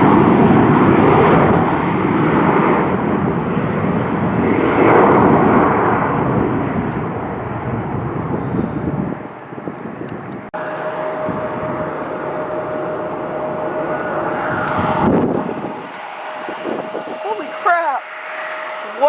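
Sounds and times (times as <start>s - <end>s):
jet engine roar: 0.0s - 19.0s
thin steady whine: 10.5s - 19.0s.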